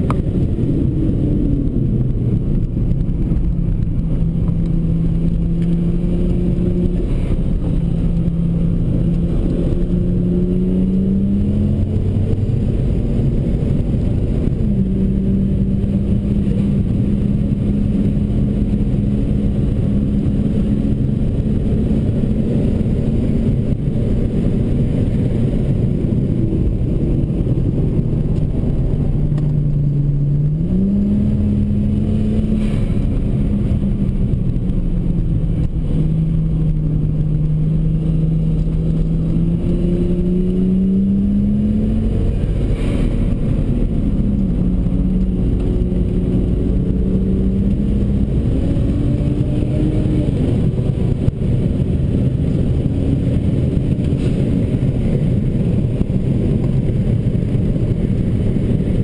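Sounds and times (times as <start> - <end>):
car engine revving: 0.0 - 59.0
road noise rumble: 0.0 - 59.0.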